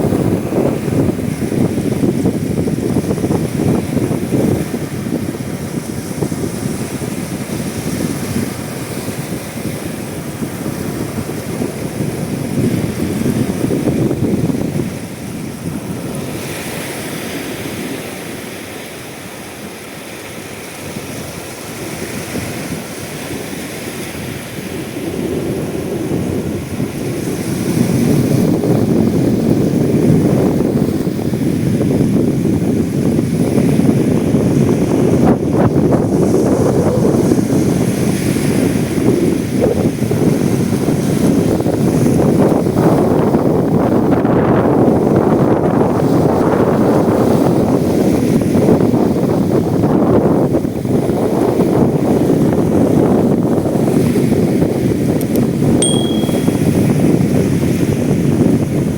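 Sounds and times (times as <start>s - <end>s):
sea waves: 0.0s - 32.0s
wind buffeting microphone: 0.0s - 58.9s.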